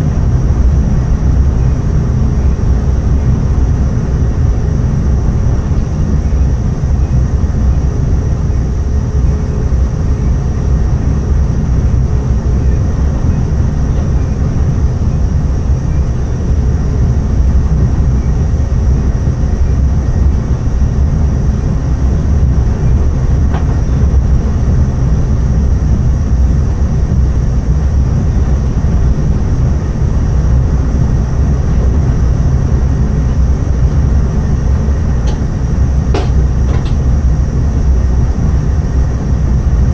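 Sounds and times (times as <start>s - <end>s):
train wheels on rails: 22.8s - 25.0s, 34.6s - 37.4s.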